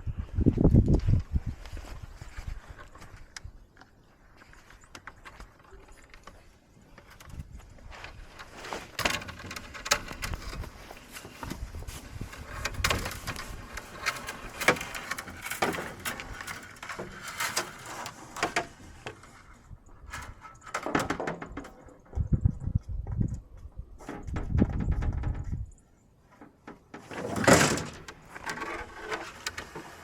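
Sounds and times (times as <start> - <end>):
fence wire clicking and rattling: 5.0 - 22.1, 27.0 - 30.0.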